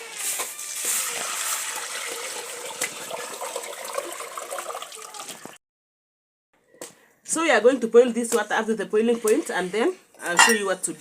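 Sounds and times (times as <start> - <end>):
water pouring into a metal pot: 0.0 - 5.6.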